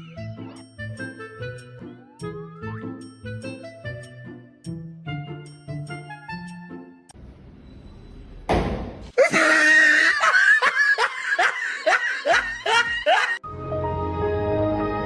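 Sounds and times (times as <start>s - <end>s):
music: 0.0s - 7.2s, 13.4s - 15.0s
person laughing hard: 9.2s - 13.4s.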